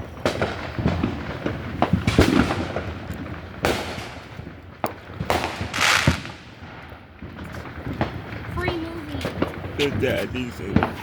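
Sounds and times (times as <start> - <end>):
fireworks bangs and pops: 0.0 - 11.0
firework hissing burst: 5.4 - 6.6.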